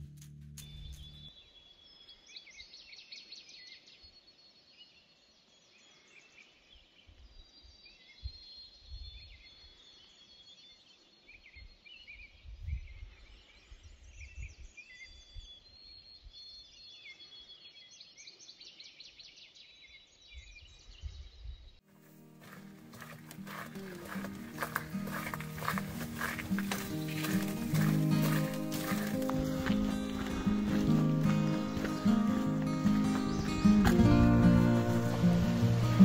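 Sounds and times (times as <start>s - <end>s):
songbirds singing: 0.6s - 21.8s, 22.4s - 36.0s.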